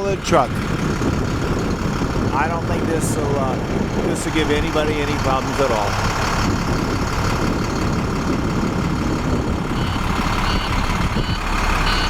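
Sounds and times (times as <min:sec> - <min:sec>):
truck diesel engine running: 0:00.0 - 0:12.0
reversing alarm beeping: 0:09.7 - 0:12.0.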